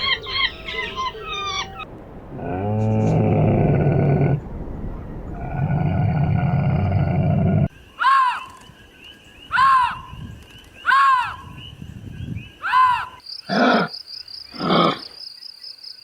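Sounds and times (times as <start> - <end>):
high chirping calls: 0.0 - 1.8.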